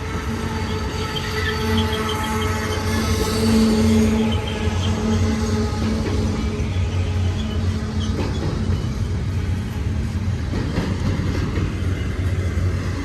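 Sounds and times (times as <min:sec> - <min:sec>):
rattle of train cars: 0:00.0 - 0:13.0
train wheels on rails: 0:00.0 - 0:13.0.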